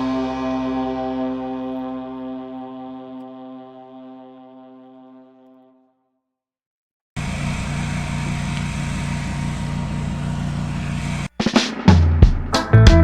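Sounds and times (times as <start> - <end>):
engine running: 7.2 - 11.4.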